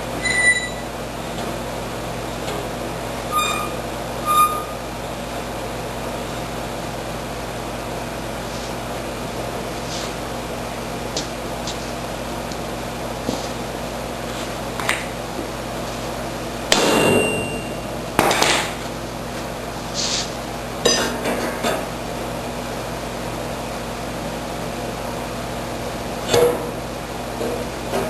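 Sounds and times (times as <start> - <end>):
steady hum: 0.0 - 21.2.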